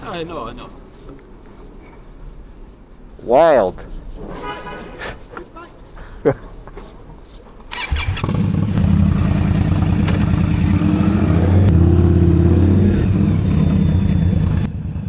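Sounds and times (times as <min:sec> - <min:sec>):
motorcycle engine accelerating: 0:07.8 - 0:15.0.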